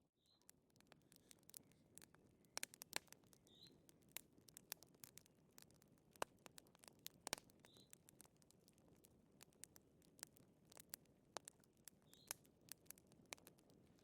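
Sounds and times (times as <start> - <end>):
wood fire crackling: 0.4 - 14.0.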